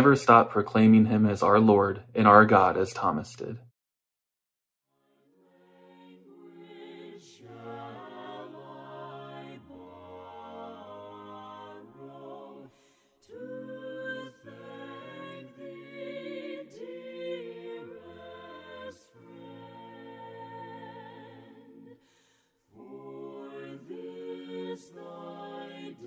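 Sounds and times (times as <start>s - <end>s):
voices singing a cappella hymn: 5.4s - 26.0s.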